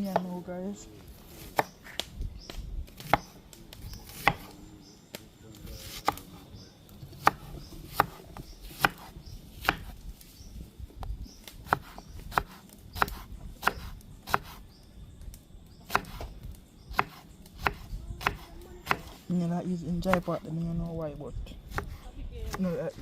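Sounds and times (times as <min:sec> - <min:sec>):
knife chopping on cutting board: 0:04.1 - 0:04.5, 0:07.2 - 0:08.2, 0:08.8 - 0:09.9, 0:11.7 - 0:14.6, 0:15.9 - 0:16.2, 0:16.9 - 0:19.1.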